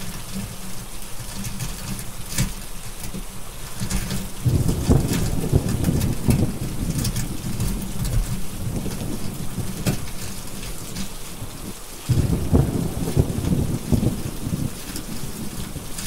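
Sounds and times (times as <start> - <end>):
heavy rain: 0.0 - 16.0
wood fire crackling and popping: 0.0 - 16.0
rolling thunder: 4.2 - 16.0.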